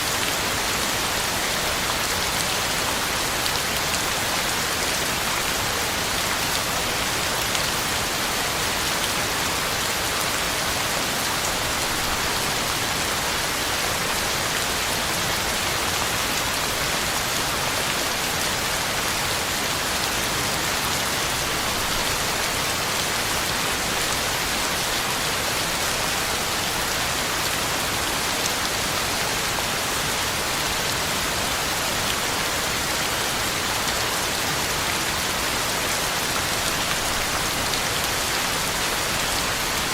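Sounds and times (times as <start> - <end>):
heavy rain pattering on leaves: 0.0 - 39.9.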